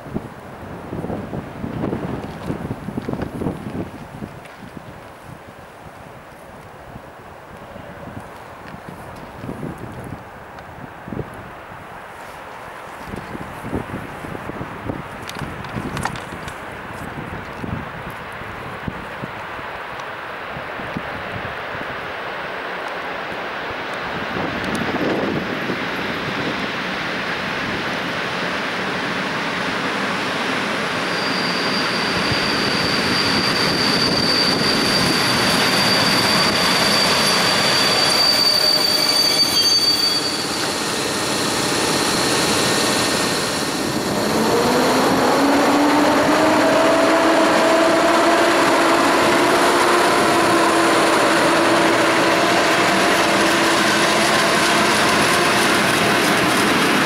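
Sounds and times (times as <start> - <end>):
train wheels and running gear: 0.1 - 6.8, 12.1 - 20.2, 22.8 - 57.0
high wheel squeal: 30.9 - 57.0
low gliding squealing tones: 30.9 - 57.0.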